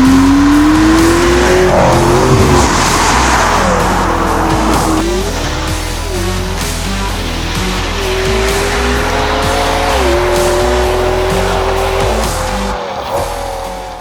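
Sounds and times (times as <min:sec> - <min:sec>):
car engine accelerating: 0:00.0 - 0:14.0
music: 0:00.0 - 0:14.0.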